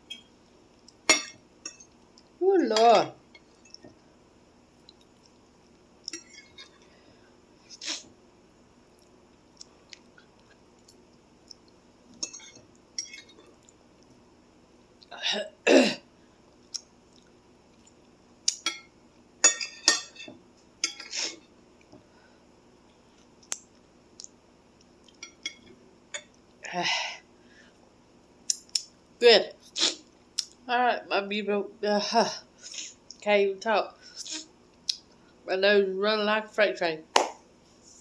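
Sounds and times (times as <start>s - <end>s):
person eating noises: 7.7s - 8.1s
person coughing: 15.2s - 16.0s.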